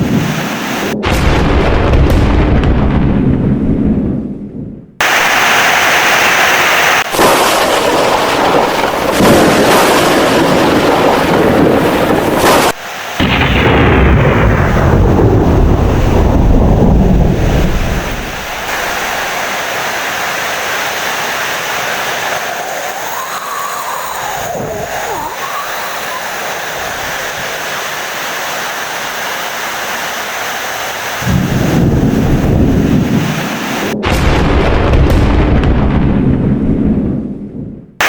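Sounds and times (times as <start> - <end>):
heavy rain: 0.0 - 1.0, 5.0 - 34.2
deep rolling thunder rumble: 0.0 - 5.0, 7.1 - 19.4, 31.2 - 38.0
loud thunder: 0.0 - 5.6, 7.0 - 19.4, 31.2 - 38.0.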